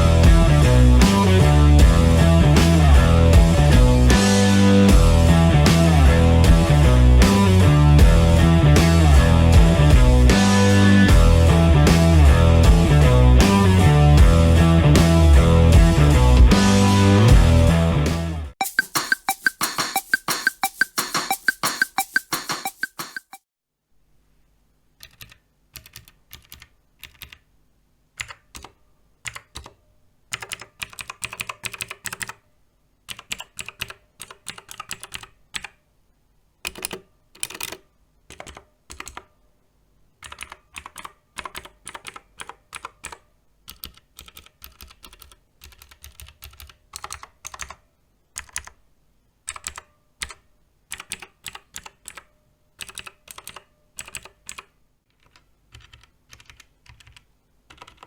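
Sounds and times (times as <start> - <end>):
mechanical keyboard key clicks: 49.5 - 58.0.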